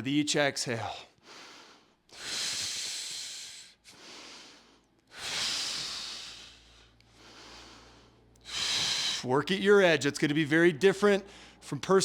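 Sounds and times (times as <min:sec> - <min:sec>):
man exhaling forcefully: 0:05.1 - 0:06.9, 0:08.4 - 0:09.3.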